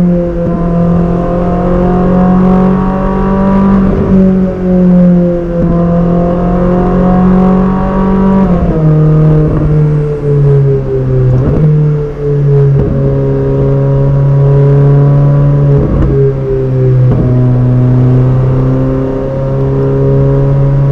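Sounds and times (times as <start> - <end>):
sports car engine revving: 0.0 - 20.9.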